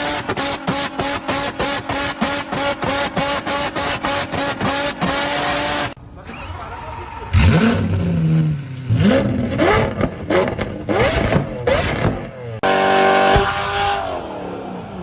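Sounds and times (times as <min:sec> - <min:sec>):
car engine revving: 0:00.0 - 0:15.0
exhaust pops and backfire bangs: 0:07.3 - 0:14.2.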